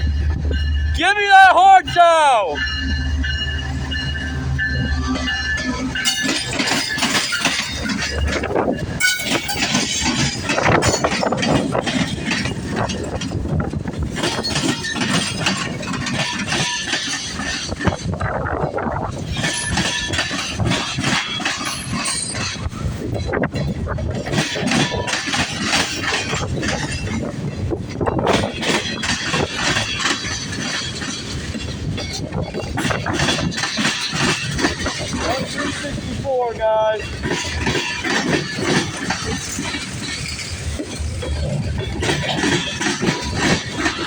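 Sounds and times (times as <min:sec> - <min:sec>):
diesel locomotive drone: 0:00.0 - 0:44.0
steel wheels rumbling on rail: 0:00.0 - 0:44.0
metallic clicking and clanking: 0:06.0 - 0:13.4.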